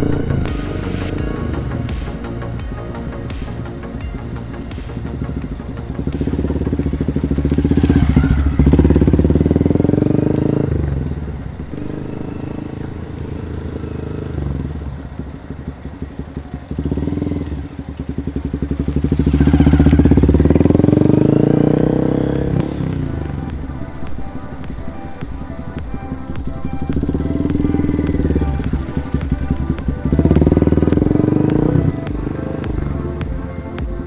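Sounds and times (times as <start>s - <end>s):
motorcycle engine passing: 0.0s - 34.0s.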